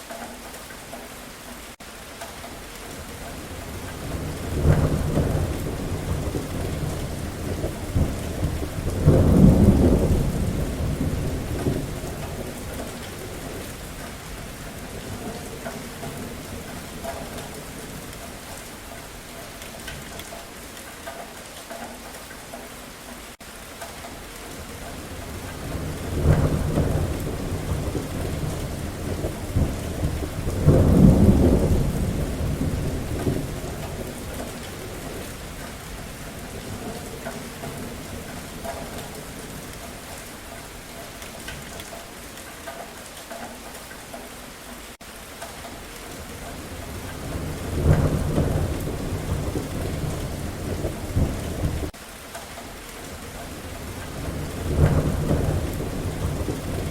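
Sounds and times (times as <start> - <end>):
steady rain: 0.0 - 56.9
thunder rolling: 3.7 - 13.8, 25.1 - 39.9, 46.6 - 52.0, 53.6 - 56.9.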